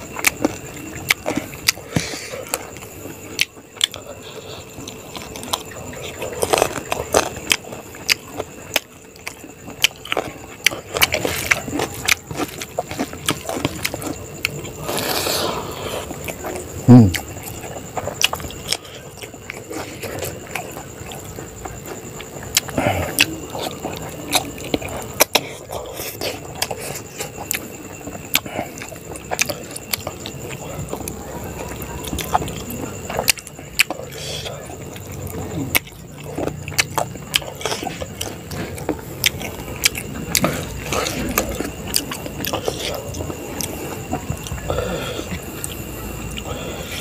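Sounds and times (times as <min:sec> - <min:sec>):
wet chewing and lip-smacking: 0:00.0 - 0:47.0
low vocal sound: 0:16.8 - 0:17.3.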